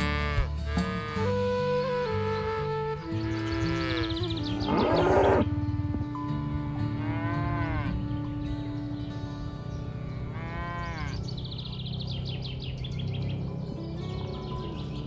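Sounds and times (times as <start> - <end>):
high bird chirps: 3.2 - 5.4
cattle mooing: 3.5 - 5.6, 6.6 - 8.0, 10.3 - 11.3
low drone: 4.0 - 7.0.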